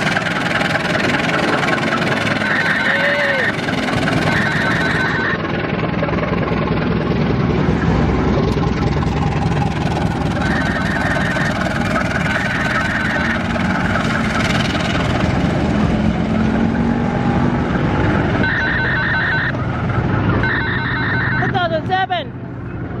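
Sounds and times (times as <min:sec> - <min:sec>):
rapidly pulsing high tone: 0:00.0 - 0:16.5, 0:18.3 - 0:19.6
locomotive diesel engine running: 0:00.0 - 0:23.0.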